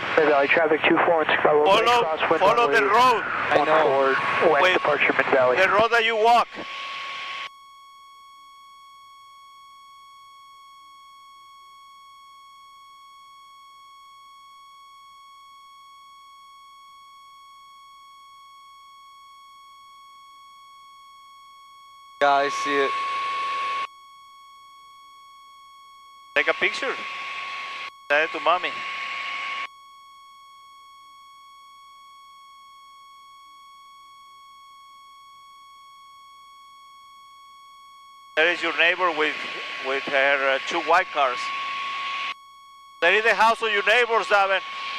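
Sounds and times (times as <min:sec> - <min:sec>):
steady electronic tone: 0:00.0 - 0:07.5, 0:38.4 - 0:44.9.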